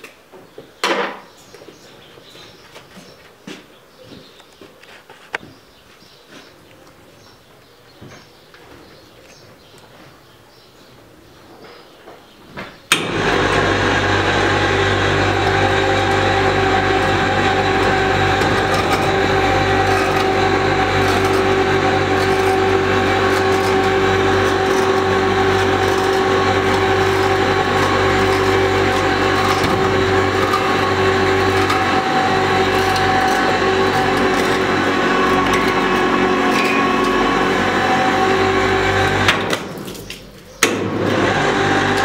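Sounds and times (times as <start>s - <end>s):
motor-driven machine running: 12.9s - 39.7s, 40.7s - 42.0s.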